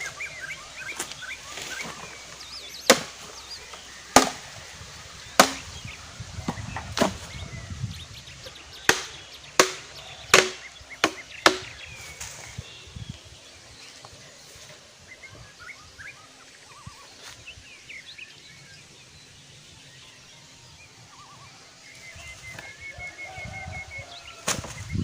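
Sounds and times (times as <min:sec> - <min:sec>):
blade chopping wood: 0:02.8 - 0:03.3, 0:04.1 - 0:04.4, 0:05.4 - 0:05.7, 0:06.5 - 0:07.2, 0:08.9 - 0:11.8, 0:24.4 - 0:24.8.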